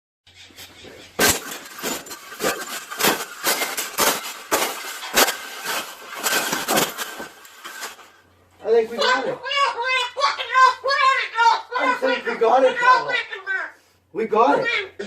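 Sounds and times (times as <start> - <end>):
wire bird cage banging: 1.1 - 8.1.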